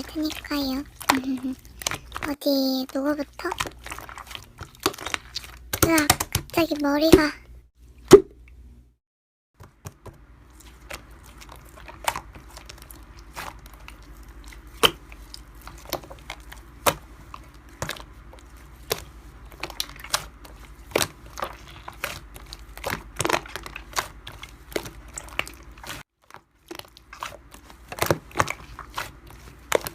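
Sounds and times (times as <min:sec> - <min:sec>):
slime crackling and popping: 0:03.5 - 0:06.6, 0:10.7 - 0:29.9.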